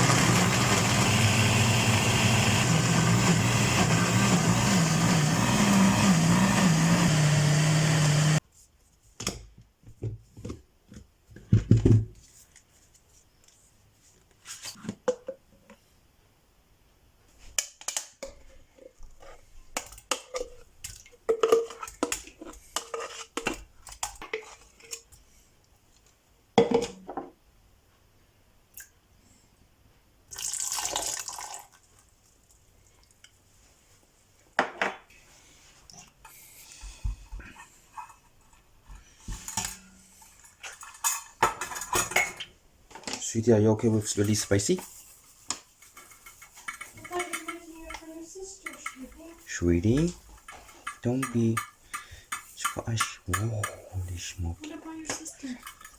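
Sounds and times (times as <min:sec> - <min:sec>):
loud whirring motor: 0:00.0 - 0:08.4
utensils and dishes clinking: 0:50.0 - 0:54.0.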